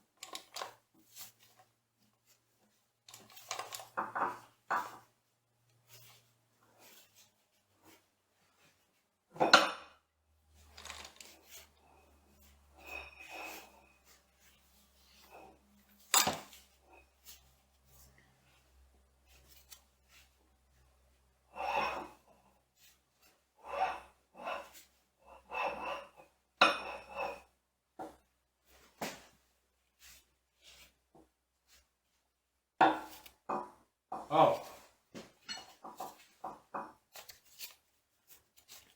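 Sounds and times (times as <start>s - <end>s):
metal parts and tools clinking: 10.7s - 11.4s, 16.0s - 16.6s.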